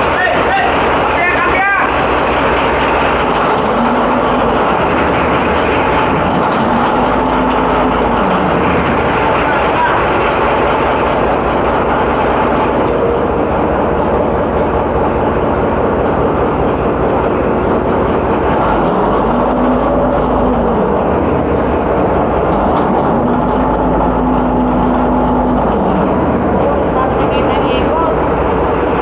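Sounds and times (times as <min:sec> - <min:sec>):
shipboard machinery noise: 0:00.0 - 0:29.0
humming tone: 0:13.1 - 0:28.4.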